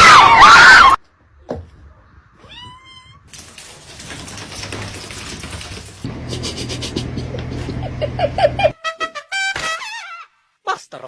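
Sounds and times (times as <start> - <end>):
cat meowing: 2.4 - 3.3.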